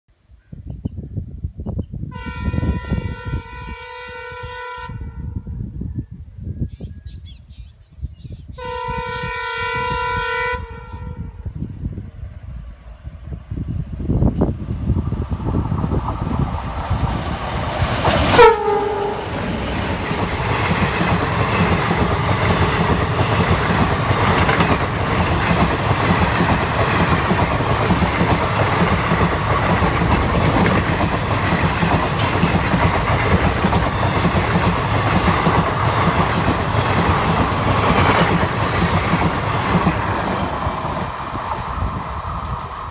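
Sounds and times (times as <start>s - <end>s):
locomotive horn: 2.1s - 5.4s, 8.6s - 11.4s, 18.3s - 19.4s
train coaches rumbling: 11.0s - 42.9s
clickety-clack of wheels on rails: 14.0s - 42.9s.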